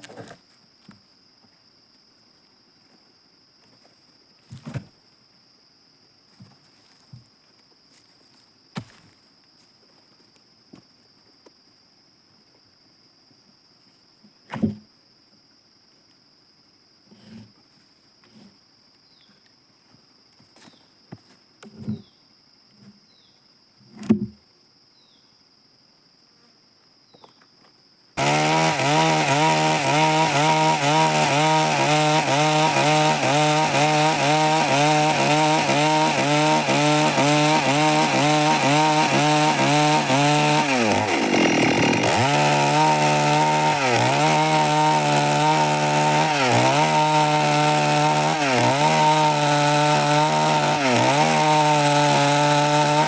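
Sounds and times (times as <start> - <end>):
chainsaw cutting wood: 28.2 - 53.0.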